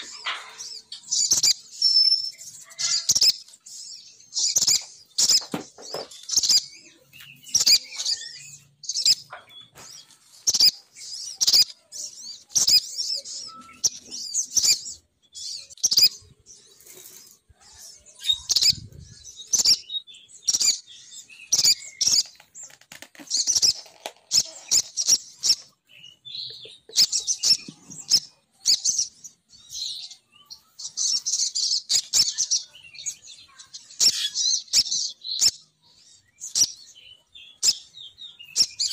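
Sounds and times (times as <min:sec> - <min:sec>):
bird lure call chirping: 0:18.1 - 0:29.2.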